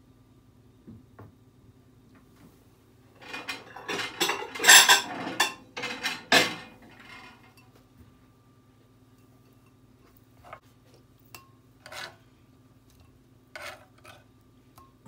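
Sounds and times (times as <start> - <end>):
cutlery scraping against dishes: 3.2 - 7.6, 11.4 - 12.2, 13.0 - 14.3.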